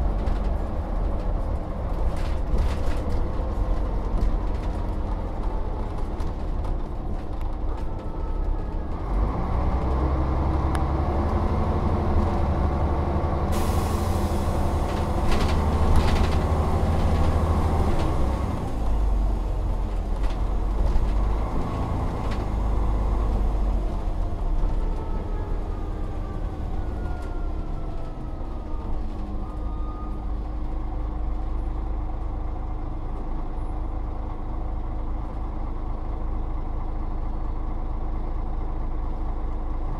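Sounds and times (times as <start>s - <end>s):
bus engine pulling under load: 0.0s - 39.9s
air brake hiss: 13.5s - 14.8s.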